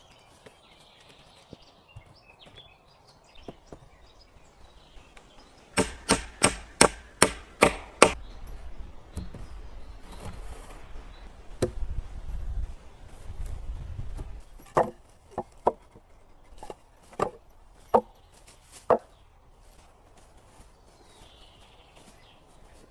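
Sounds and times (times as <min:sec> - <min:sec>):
wood being chopped: 0:05.7 - 0:08.2, 0:11.5 - 0:11.9, 0:14.6 - 0:16.0, 0:16.6 - 0:18.1, 0:18.8 - 0:19.1.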